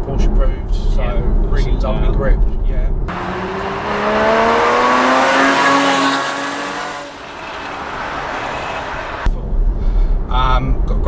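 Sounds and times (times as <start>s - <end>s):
car engine accelerating hard: 3.1s - 9.3s.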